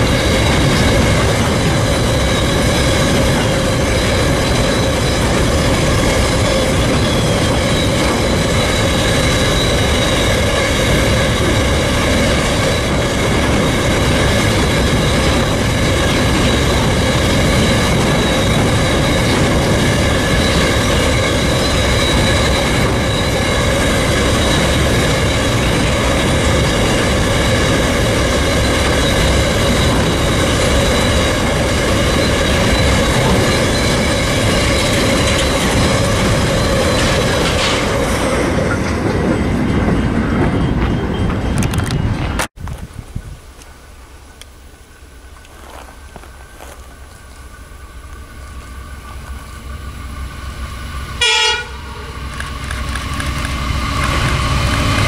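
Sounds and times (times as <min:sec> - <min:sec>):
high wheel squeal: 0:00.0 - 0:42.5, 0:45.2 - 0:55.0
heavy rumble of train wheels: 0:00.0 - 0:55.0.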